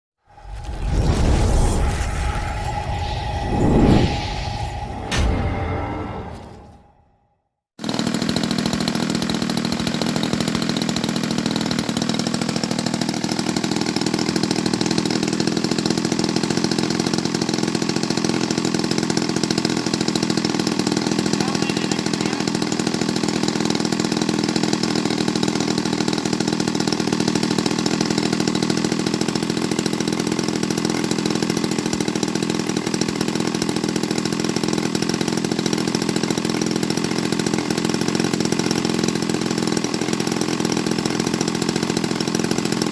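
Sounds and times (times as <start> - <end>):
model airplane engine running: 7.8 - 42.9.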